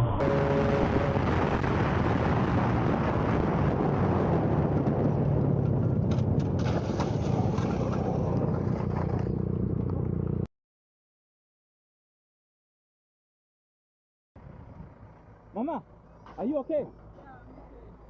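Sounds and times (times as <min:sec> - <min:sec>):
vehicle road and wind noise: 0:00.0 - 0:10.5, 0:14.4 - 0:18.0.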